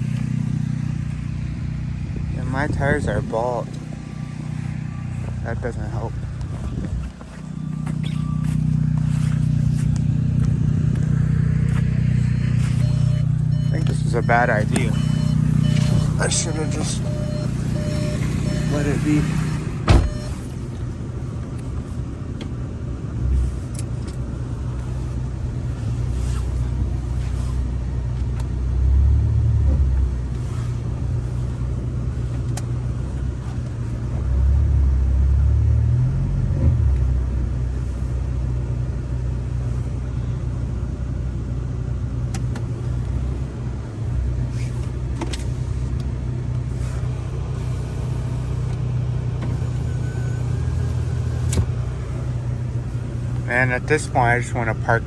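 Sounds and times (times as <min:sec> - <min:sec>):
car engine revving: 0:00.0 - 0:21.5, 0:42.2 - 0:55.0.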